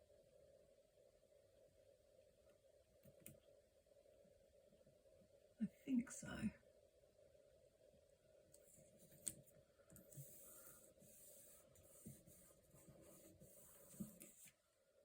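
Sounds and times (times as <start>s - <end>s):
paper rustling and rubbing: 10.1s - 14.6s.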